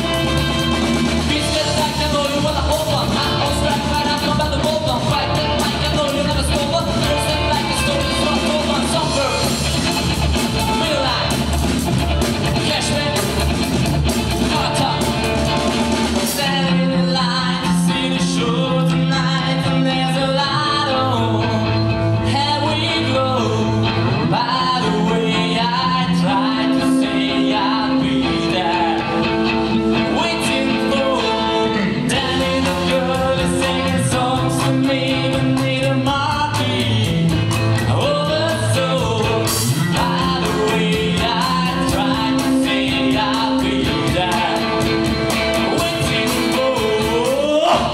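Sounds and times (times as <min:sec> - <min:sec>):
person singing: 0:00.0 - 0:09.7, 0:10.3 - 0:11.6, 0:12.3 - 0:13.6, 0:14.4 - 0:47.9
rock band playing: 0:00.0 - 0:47.9.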